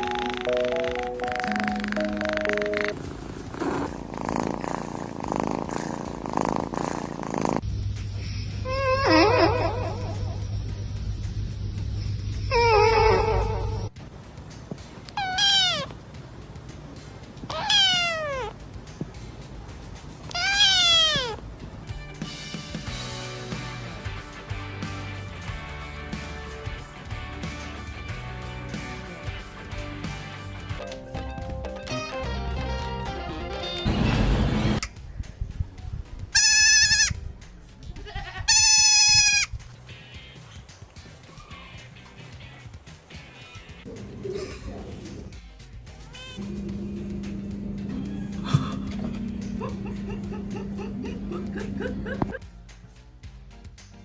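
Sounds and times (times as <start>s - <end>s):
cat meowing: 15.1s - 15.9s, 17.5s - 18.6s, 20.2s - 21.4s
animal bleating cry: 15.2s - 15.9s, 17.5s - 18.6s, 20.3s - 21.4s, 36.4s - 37.2s, 38.0s - 39.5s.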